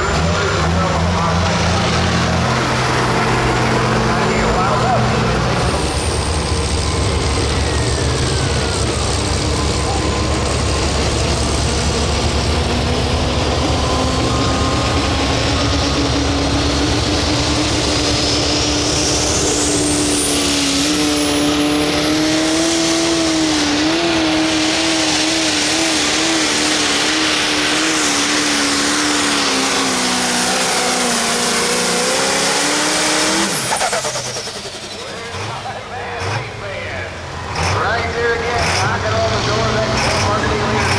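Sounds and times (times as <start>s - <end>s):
diesel engine at full load: 0.0s - 40.9s.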